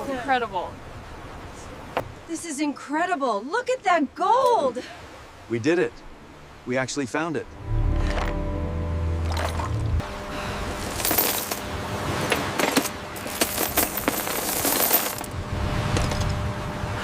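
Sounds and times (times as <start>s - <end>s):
coins clinking: 10.9s - 11.6s, 12.6s - 15.3s.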